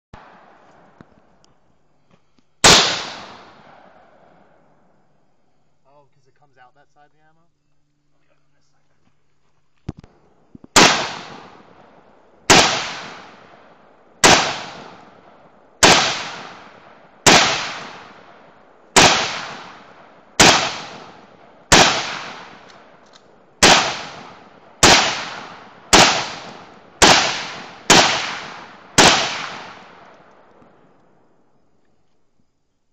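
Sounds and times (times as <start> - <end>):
rifle shots with long echo: 0.2 - 1.4, 2.6 - 5.0, 10.3 - 31.6.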